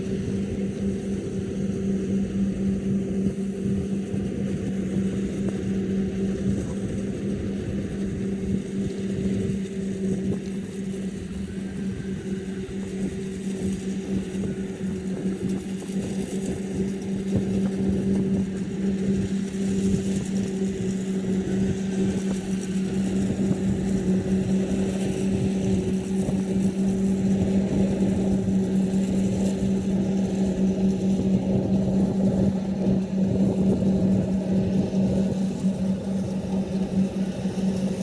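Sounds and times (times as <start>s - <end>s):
combine harvester running: 0.0s - 38.0s.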